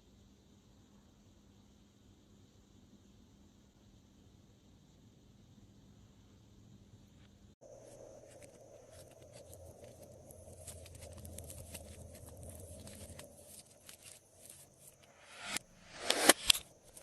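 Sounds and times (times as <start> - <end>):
slime clicking and squishing: 8.9 - 14.6.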